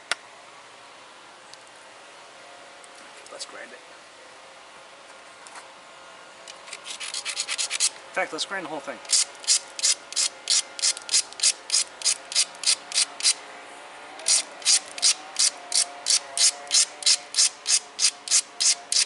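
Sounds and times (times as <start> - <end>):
stone rasping on an abrader: 6.7 - 7.9, 9.1 - 13.4, 14.2 - 19.0.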